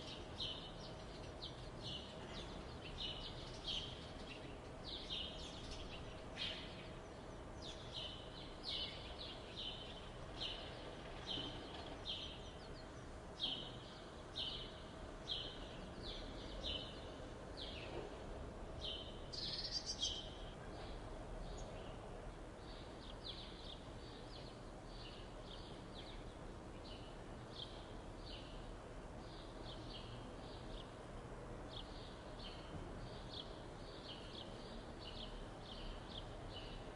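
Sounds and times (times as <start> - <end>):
steady background noise: 0.0 - 36.9.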